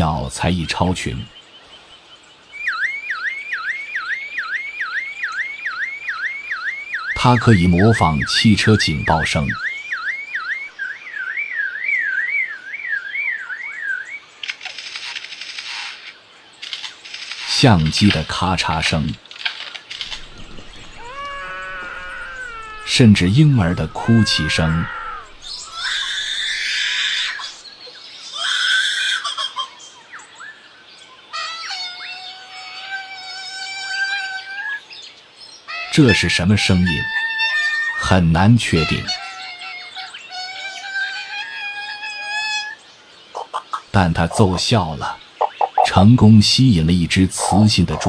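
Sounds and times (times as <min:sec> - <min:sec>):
faint bird chirps and whistles: 0:02.5 - 0:14.3, 0:20.0 - 0:32.3, 0:42.5 - 0:46.6
bird mimicking car alarm: 0:02.6 - 0:14.1, 0:45.4 - 0:46.0
bird mimicking baby crying: 0:20.1 - 0:27.6, 0:28.2 - 0:30.0, 0:31.3 - 0:34.9, 0:35.7 - 0:42.8.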